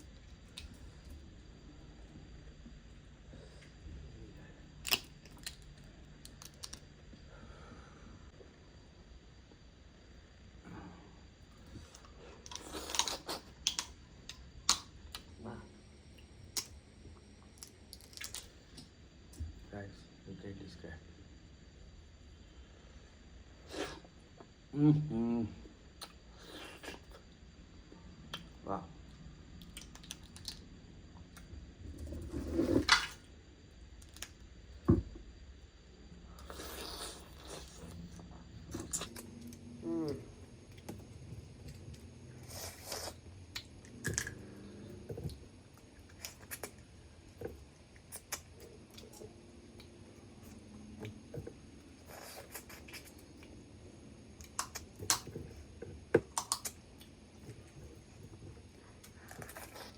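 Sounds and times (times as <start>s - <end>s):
crab shell cracking: 4.8s - 6.9s, 17.6s - 18.9s
handling and eating noise: 4.8s - 7.2s, 31.2s - 33.3s, 36.4s - 59.9s.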